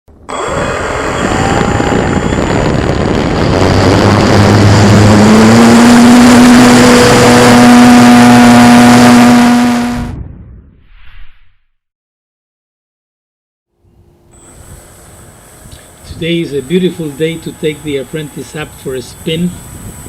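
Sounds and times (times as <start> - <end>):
model plane electric motor whine: 0.2 - 10.0, 14.3 - 20.0
wind on microphone: 0.2 - 10.8, 14.6 - 20.0.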